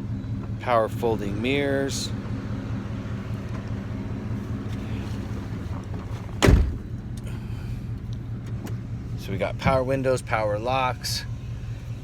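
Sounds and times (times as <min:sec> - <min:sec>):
engine idling: 0:00.0 - 0:12.0
heavy thump: 0:06.3 - 0:07.0.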